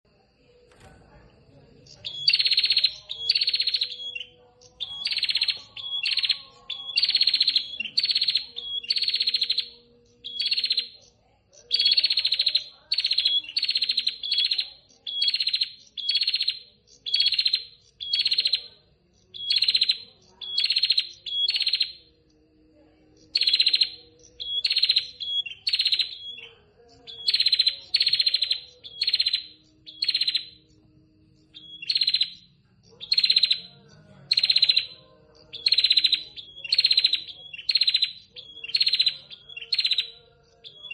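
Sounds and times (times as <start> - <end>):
bird buzzy ticking calls: 1.9 - 18.6, 19.3 - 22.0, 23.2 - 30.7, 31.5 - 33.7, 34.3 - 40.9.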